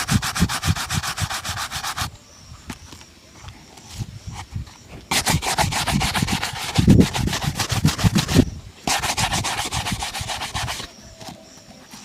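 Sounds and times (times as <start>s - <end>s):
brush rubbing a shoe: 0.0s - 2.1s, 5.1s - 11.4s.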